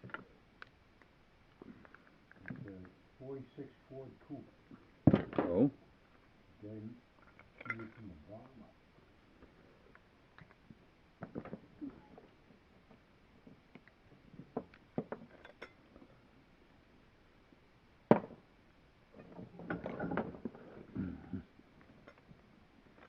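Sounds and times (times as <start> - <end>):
small parts clicking and knocking: 7.2 - 8.1.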